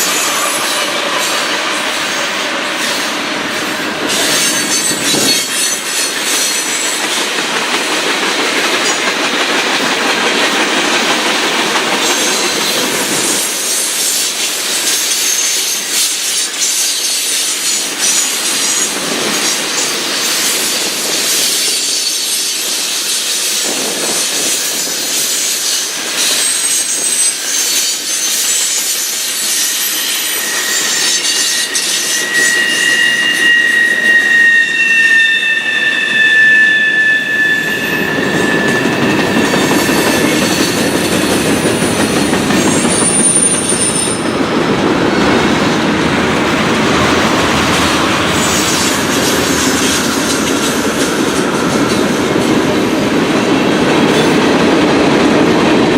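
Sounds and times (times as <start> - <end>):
train wheels clacking: 0.0 - 55.9
high-pitched wheel squeal: 4.0 - 7.1, 25.5 - 44.4, 46.5 - 52.4.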